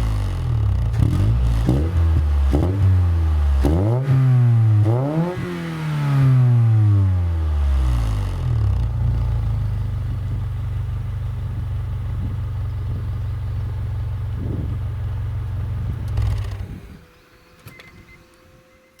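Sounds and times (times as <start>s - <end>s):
car engine idling: 7.4s - 17.0s.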